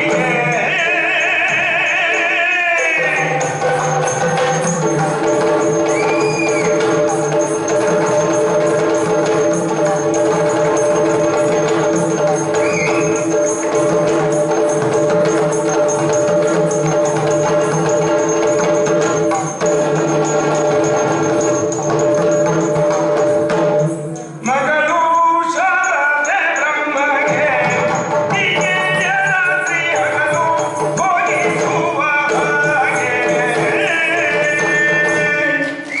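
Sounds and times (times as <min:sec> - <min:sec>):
jingling: 0:00.0 - 0:36.0
percussion strokes: 0:00.0 - 0:36.0
person singing: 0:24.4 - 0:36.0.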